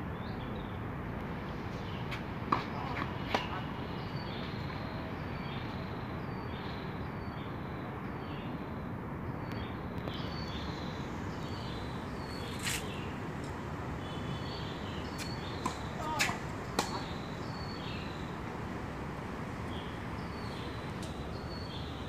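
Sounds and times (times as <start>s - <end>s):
tennis ball knocks: 15.2s - 17.1s.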